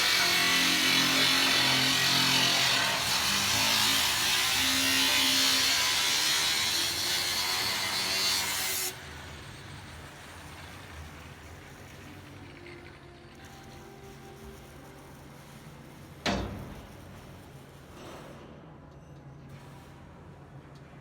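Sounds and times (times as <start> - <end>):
power tool cutting steel: 0.0 - 12.4.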